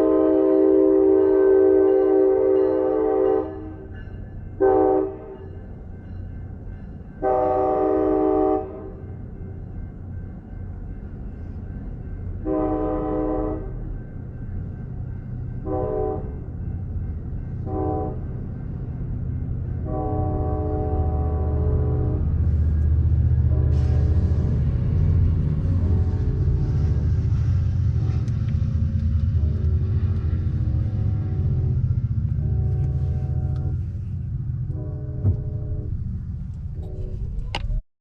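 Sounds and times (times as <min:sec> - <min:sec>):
locomotive air horn blasts: 0:00.0 - 0:03.8, 0:04.6 - 0:05.4, 0:07.2 - 0:09.0, 0:12.4 - 0:13.7, 0:15.6 - 0:16.4, 0:17.7 - 0:18.2, 0:19.8 - 0:22.4, 0:23.4 - 0:24.6, 0:29.4 - 0:29.8, 0:32.4 - 0:33.9, 0:34.7 - 0:35.9, 0:36.8 - 0:37.4
passing train rumble: 0:00.0 - 0:37.8.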